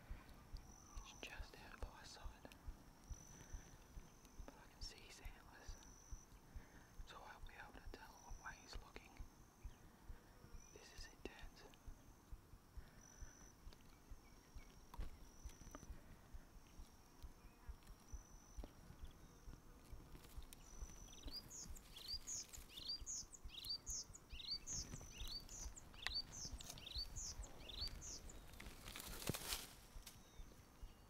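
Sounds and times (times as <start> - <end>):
small bird chirping: 0.1 - 31.0
rustle of leaves: 20.2 - 23.2, 24.6 - 30.3.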